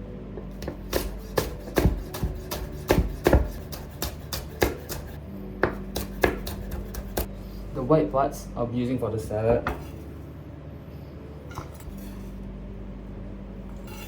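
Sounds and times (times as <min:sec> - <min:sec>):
knife chopping on cutting board: 0:00.6 - 0:07.3.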